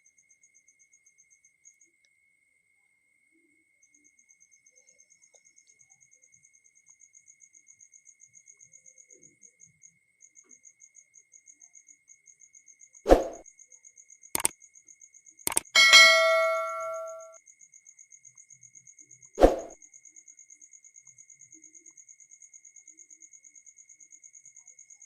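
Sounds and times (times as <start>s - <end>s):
clicks: 15.5s - 17.3s
metal object clanging: 15.5s - 17.4s.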